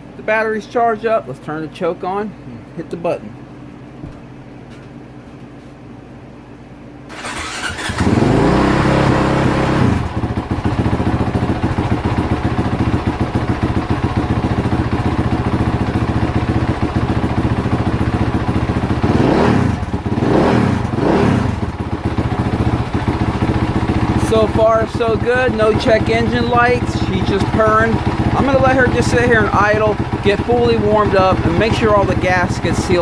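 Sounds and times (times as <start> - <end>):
electric starter cranking: 7.1 - 10.2
motorcycle engine idling and revving: 7.1 - 33.0.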